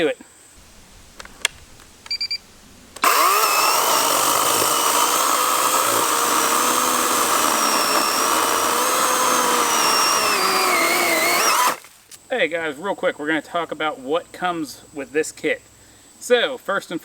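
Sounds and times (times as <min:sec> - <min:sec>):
electric chainsaw whine: 0:03.0 - 0:11.9.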